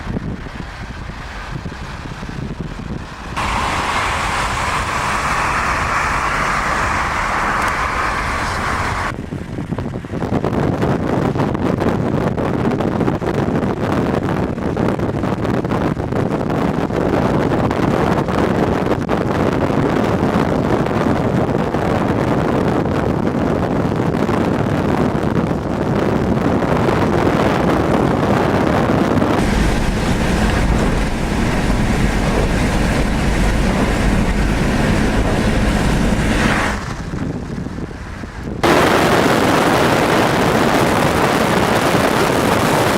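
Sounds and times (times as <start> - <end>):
heavy rain: 0.0 - 9.2, 29.4 - 42.9
wind buffeting microphone: 0.0 - 42.9.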